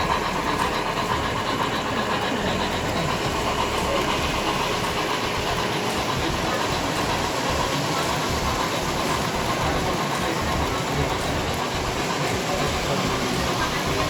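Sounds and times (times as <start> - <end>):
model trains rumbling whir: 0.0 - 14.0.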